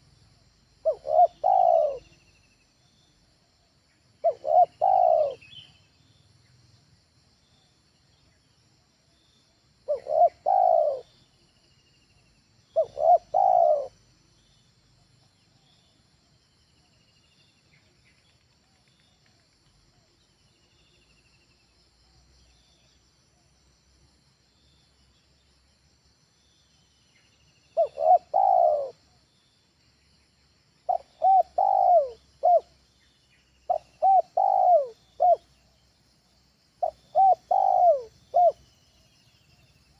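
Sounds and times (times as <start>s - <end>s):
dove cooing: 0.8s - 2.2s, 4.2s - 5.6s, 9.8s - 11.1s, 12.7s - 14.0s, 27.8s - 29.0s, 30.9s - 32.8s, 33.7s - 35.6s, 36.8s - 38.7s.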